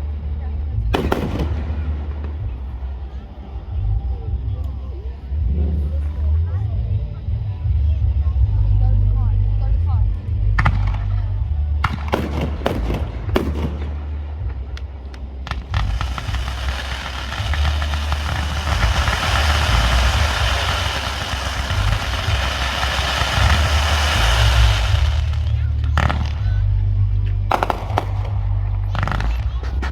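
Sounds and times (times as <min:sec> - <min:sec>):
low rumble: 0:00.0 - 0:29.9
fireworks bangs: 0:01.0 - 0:03.4, 0:11.8 - 0:26.7, 0:27.5 - 0:29.6
fireworks crackling: 0:01.0 - 0:04.0, 0:11.8 - 0:29.9.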